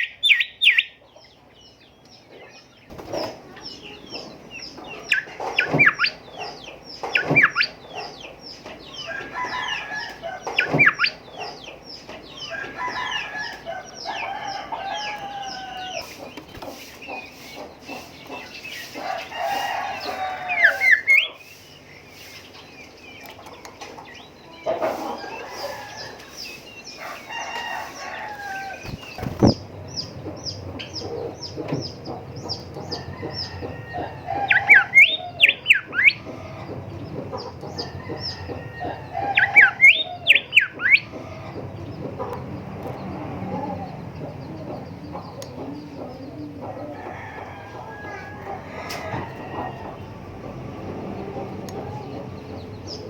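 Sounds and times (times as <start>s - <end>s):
bird whistled song: 0.0s - 1.0s, 4.6s - 6.3s, 6.9s - 7.8s, 8.9s - 11.3s, 20.0s - 23.3s, 33.0s - 36.2s, 37.8s - 41.1s.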